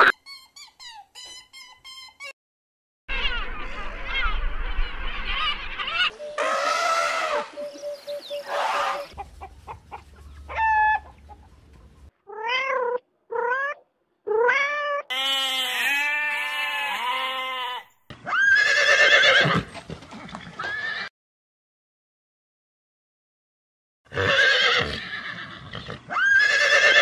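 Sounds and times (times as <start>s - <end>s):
horse whinnying: 15.1s - 19.7s, 24.1s - 27.0s.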